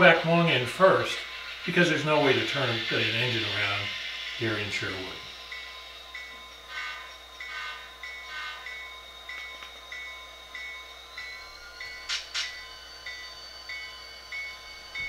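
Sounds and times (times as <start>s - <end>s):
locomotive bell ringing: 0.0s - 15.0s
rising whine: 0.0s - 15.0s
sharp clicks: 12.1s - 12.6s.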